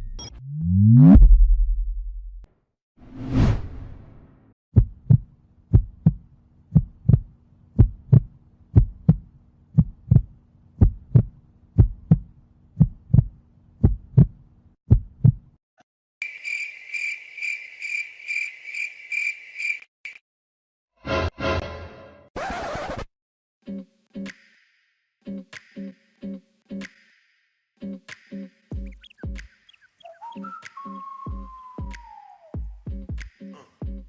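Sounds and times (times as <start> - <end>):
heartbeat thumps: 4.8 - 15.5, 28.8 - 29.5, 31.3 - 32.0, 32.6 - 34.0
crickets chirping trill: 16.2 - 19.9.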